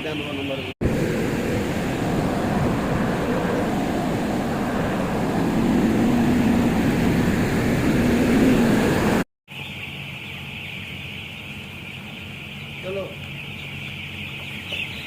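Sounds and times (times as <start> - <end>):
loud rumbling with low hum: 0.8 - 9.2
chicks peeping: 9.5 - 15.0.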